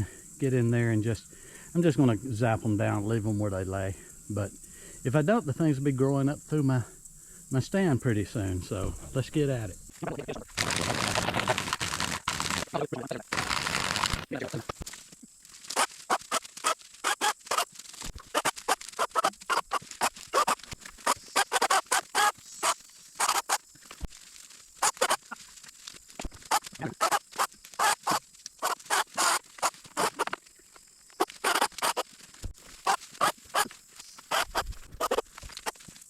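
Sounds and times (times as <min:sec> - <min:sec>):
brush crackling and snapping: 0:10.5 - 0:36.0.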